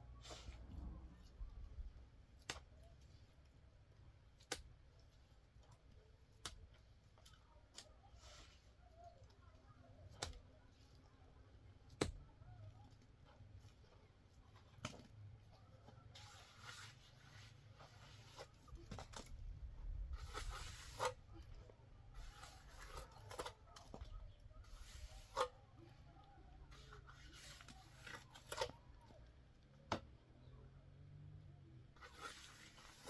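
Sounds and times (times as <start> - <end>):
rustling or tearing: 20.1 - 21.5, 32.0 - 33.0.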